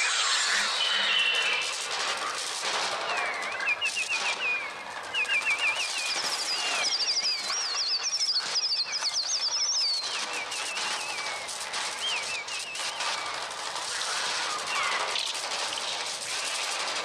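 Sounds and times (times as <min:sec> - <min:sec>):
electronic wavering shrieks: 0:00.0 - 0:02.4
electronic wing-flapping flutter: 0:00.0 - 0:17.0.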